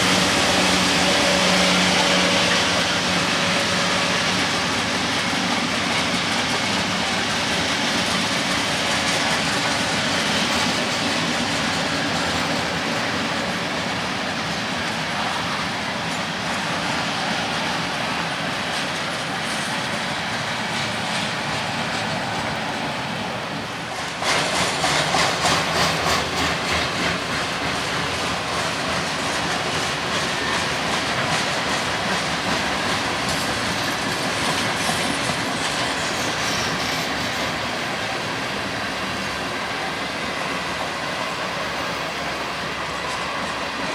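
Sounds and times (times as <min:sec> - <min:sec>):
freight train wheels on rails: 0:00.0 - 0:43.9
train clickety-clack: 0:00.0 - 0:43.9.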